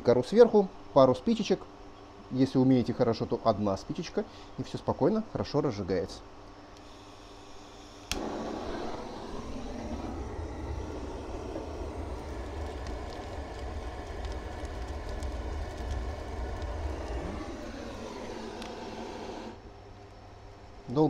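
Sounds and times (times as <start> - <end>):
gas torch flame rushing: 6.8 - 19.6.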